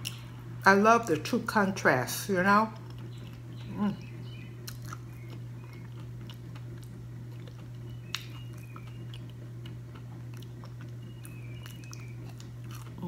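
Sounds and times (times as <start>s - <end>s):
low hum: 0.0s - 13.0s
person chewing crispy food: 2.8s - 3.7s, 4.6s - 13.0s.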